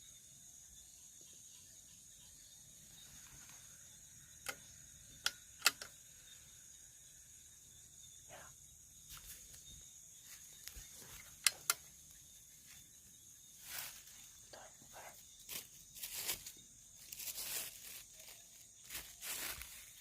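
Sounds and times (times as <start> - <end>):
insects chirring: 0.0 - 20.0
sharp clicks: 4.4 - 6.0, 11.2 - 11.9.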